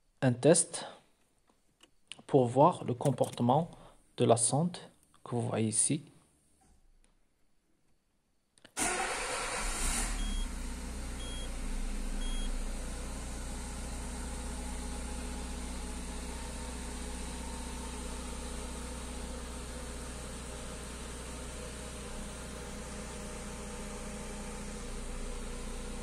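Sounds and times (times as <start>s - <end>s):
car engine starting and idling: 8.8s - 26.0s.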